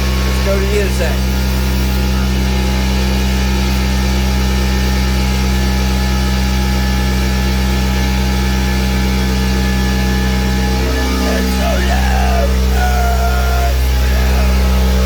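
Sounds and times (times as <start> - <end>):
engine humming: 10.1 - 15.0.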